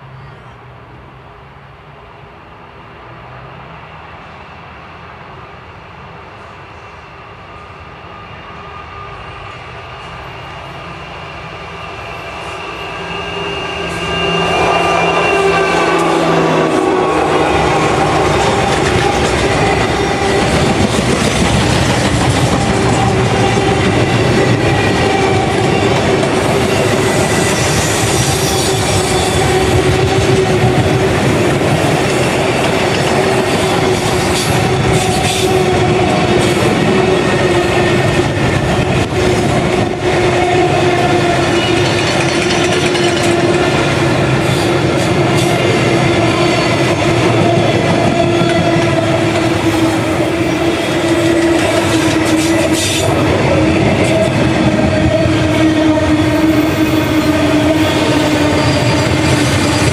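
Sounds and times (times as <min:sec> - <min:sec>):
freight train rumbling past: 0:00.0 - 0:59.9
wheels squealing: 0:10.2 - 0:59.9.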